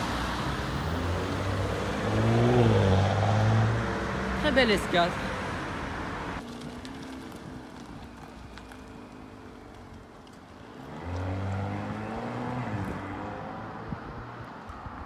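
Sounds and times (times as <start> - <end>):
car engine accelerating past: 10.8 - 14.5.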